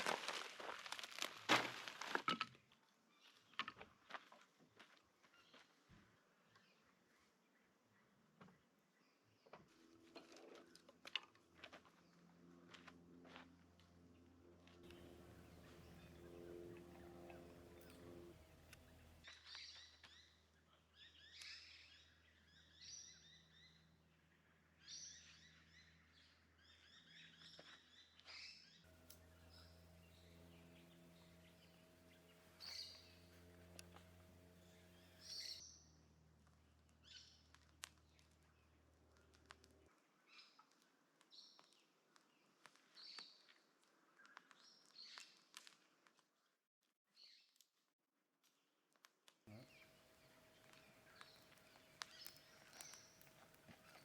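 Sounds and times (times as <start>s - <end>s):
faint birdsong chirping: 2.9s - 12.9s, 14.1s - 45.5s, 49.5s - 54.0s
faint low hum: 11.6s - 26.6s, 28.9s - 40.3s, 49.5s - 54.0s.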